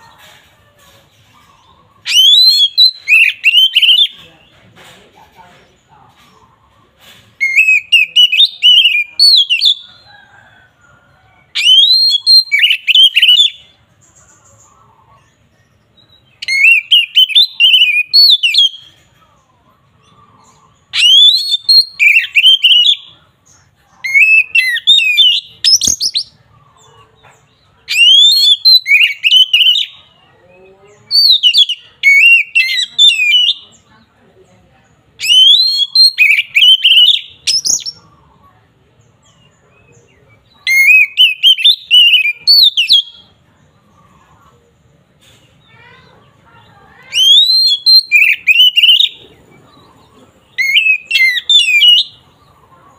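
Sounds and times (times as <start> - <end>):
bird singing whistled phrases: 2.0 - 4.2, 7.4 - 9.8, 11.6 - 13.7, 16.1 - 18.9, 20.5 - 23.2, 24.1 - 26.4, 27.9 - 30.0, 31.1 - 33.7, 35.2 - 38.0, 40.6 - 43.3, 47.0 - 49.2, 50.5 - 52.2.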